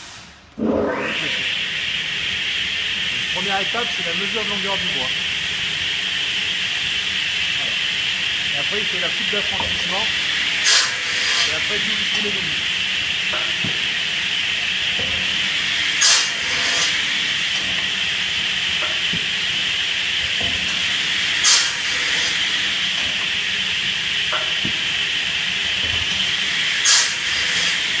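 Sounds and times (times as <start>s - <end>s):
loud bursts of hiss: 0.0s - 0.4s, 8.2s - 14.6s, 15.4s - 18.4s, 20.8s - 23.5s, 26.2s - 28.0s
log cutting machine hiss: 0.0s - 28.0s.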